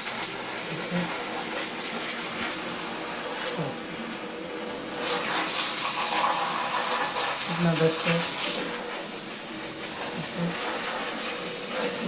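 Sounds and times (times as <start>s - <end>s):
running water splashing: 0.0s - 12.0s.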